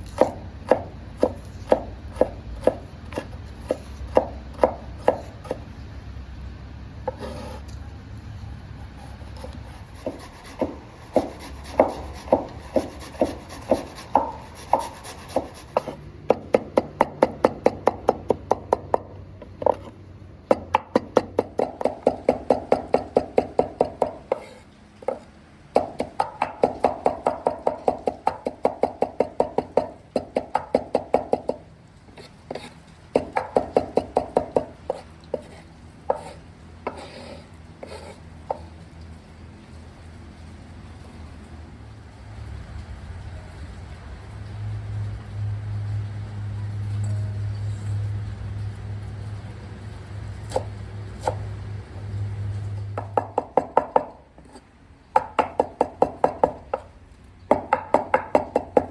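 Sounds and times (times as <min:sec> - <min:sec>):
knife chopping on cutting board: 0:00.1 - 0:05.6, 0:07.1 - 0:07.6, 0:09.4 - 0:19.0, 0:32.5 - 0:38.6.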